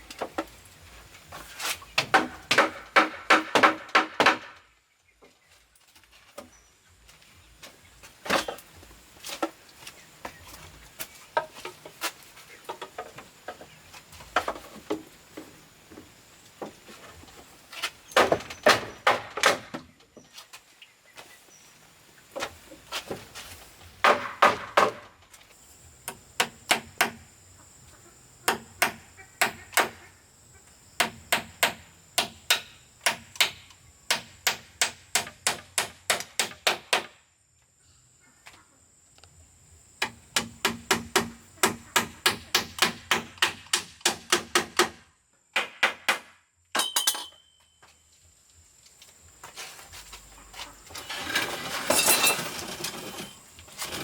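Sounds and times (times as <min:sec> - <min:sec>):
hand tool striking wood: 0:02.0 - 0:04.6, 0:17.8 - 0:19.9, 0:24.0 - 0:25.1, 0:26.0 - 0:27.2, 0:28.5 - 0:30.0, 0:31.0 - 0:37.2, 0:40.0 - 0:45.0
faint steady high tone: 0:46.8 - 0:48.2.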